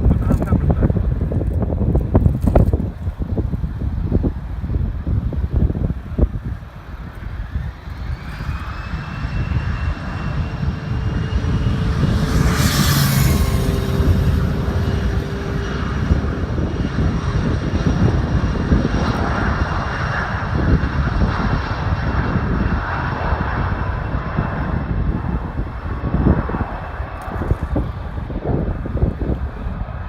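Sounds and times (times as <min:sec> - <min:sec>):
airliner engines rumbling: 0:00.0 - 0:30.0.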